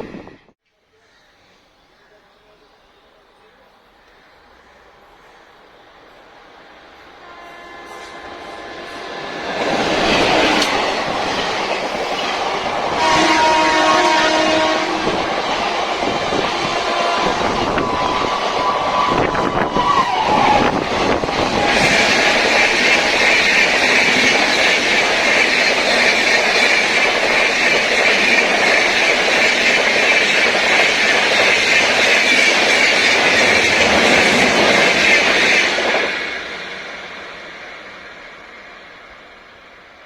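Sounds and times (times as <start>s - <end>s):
train wheels rolling on rail: 3.2s - 40.0s
train horn: 7.2s - 10.8s, 12.7s - 23.3s.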